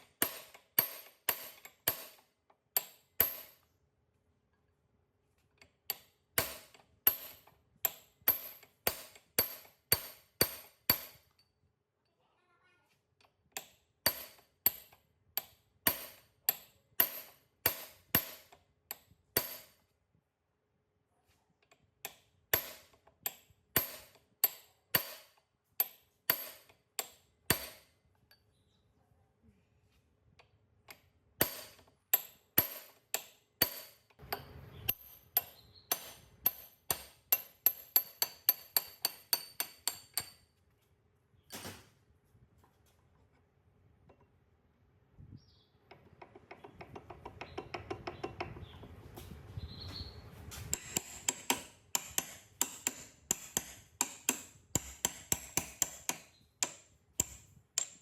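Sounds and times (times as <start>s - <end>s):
hammer striking metal: 31.4s - 40.4s, 50.7s - 58.0s.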